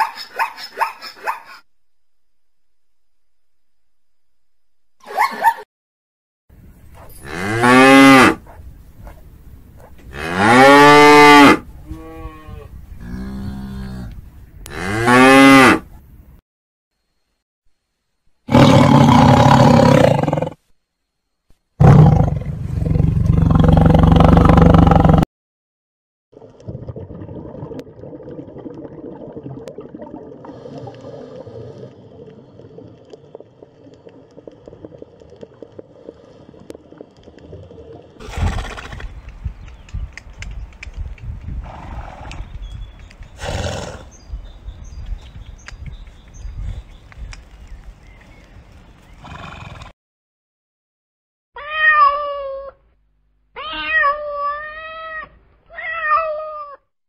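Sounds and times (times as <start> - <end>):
tiger roaring: 18.5 - 20.6.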